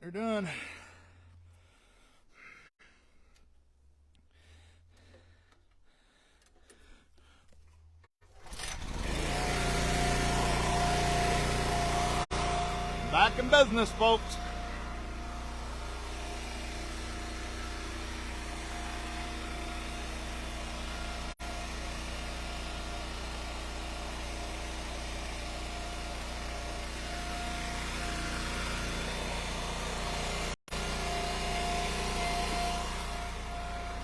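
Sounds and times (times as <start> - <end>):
gas engine running: 8.3 - 34.0.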